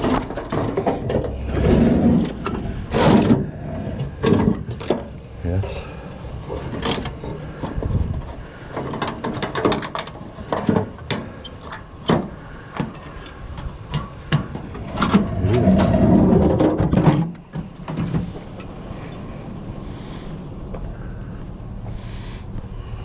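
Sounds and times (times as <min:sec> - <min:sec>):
scrap knocking and clanking: 0:00.0 - 0:05.2, 0:06.4 - 0:18.6
scraping and shifting junk: 0:00.0 - 0:18.8.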